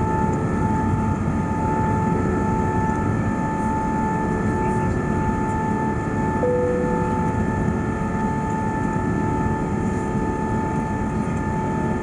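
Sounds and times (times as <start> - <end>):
jet engine roar in cabin: 0.0 - 12.0
high tonal whine: 6.4 - 8.3.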